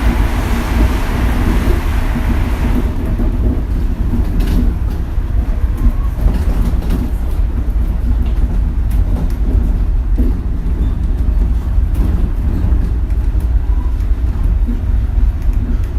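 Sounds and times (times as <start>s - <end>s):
deep rumble of monorail car: 0.0s - 15.9s.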